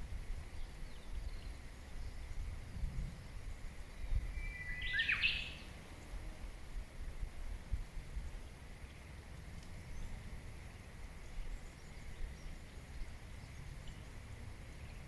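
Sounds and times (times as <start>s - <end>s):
bird whistle call: 4.4s - 5.6s.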